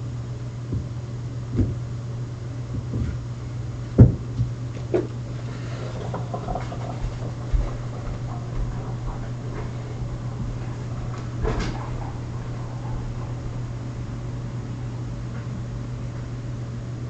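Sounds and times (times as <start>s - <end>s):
vacuum knocking against things: 0.7s - 1.8s, 2.7s - 3.2s, 4.0s - 5.2s, 5.8s - 13.5s
vacuum cleaner humming: 0.7s - 16.2s.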